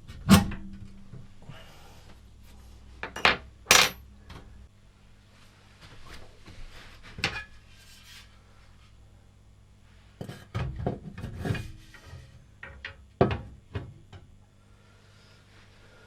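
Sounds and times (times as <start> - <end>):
faint steady hum: 0.4 - 16.0
tools clattering on a bench: 3.0 - 4.1.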